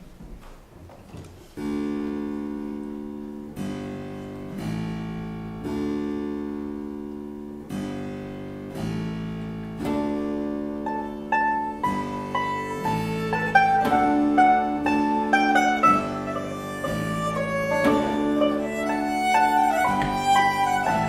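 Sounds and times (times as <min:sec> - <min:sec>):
harpsichord and plucked strings chords: 0:07.6 - 0:21.0.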